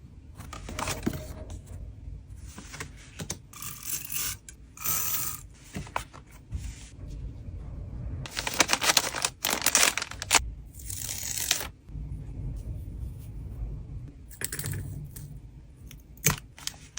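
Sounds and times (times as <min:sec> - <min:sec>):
wind rumble on microphone: 0:06.5 - 0:09.2, 0:11.9 - 0:15.9
plastic packaging crinkling: 0:08.3 - 0:11.8, 0:16.2 - 0:16.9.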